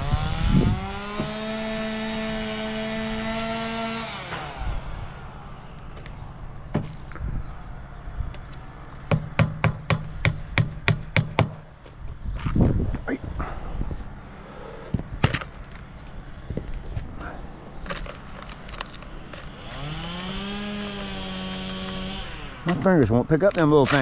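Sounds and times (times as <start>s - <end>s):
pitched droning hum: 0.0s - 24.0s
hammer driving nails: 9.1s - 11.6s.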